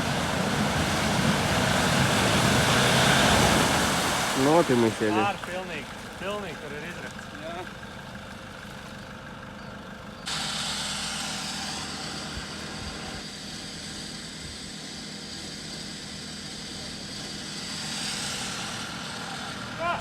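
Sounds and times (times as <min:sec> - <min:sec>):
off-road vehicle engine running: 0:00.0 - 0:20.0
loud steady hiss: 0:10.3 - 0:20.0.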